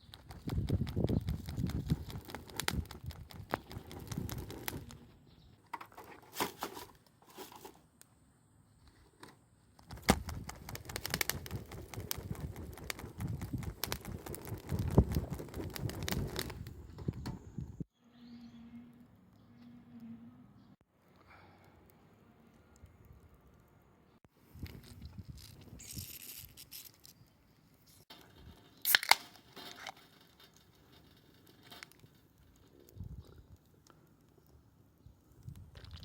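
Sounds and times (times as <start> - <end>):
campfire crackling: 0.1 - 5.2, 9.8 - 17.9, 28.1 - 36.0.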